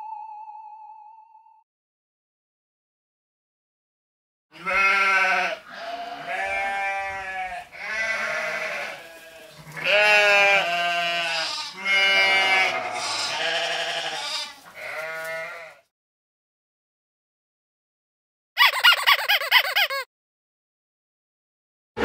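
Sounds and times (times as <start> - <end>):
sheep bleating: 4.5 - 15.9.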